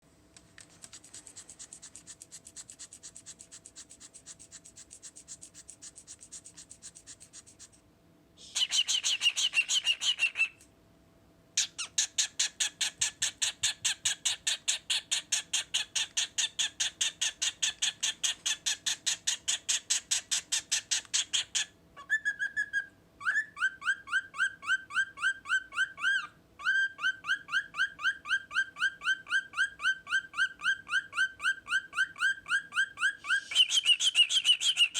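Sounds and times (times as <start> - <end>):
cockatiel clicking and chattering: 0.4 - 7.8, 8.6 - 10.6, 11.6 - 21.8, 33.5 - 34.9
fast pitched chirps: 8.4 - 10.6.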